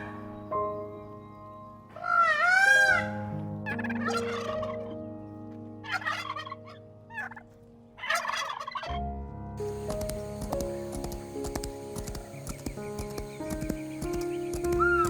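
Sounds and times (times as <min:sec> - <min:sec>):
soft background music: 0:00.0 - 0:15.0
sharp clicks: 0:09.6 - 0:15.0
fowl rattling calls: 0:09.7 - 0:15.0.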